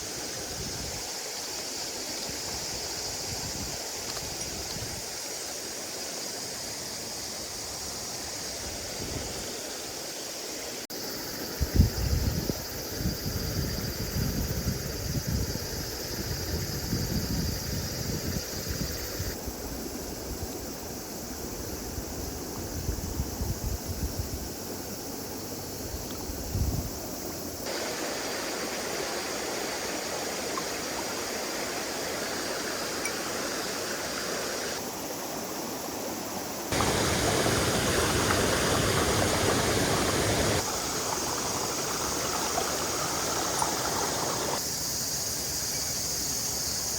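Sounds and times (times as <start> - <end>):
stream rushing over rocks: 27.7 - 44.6.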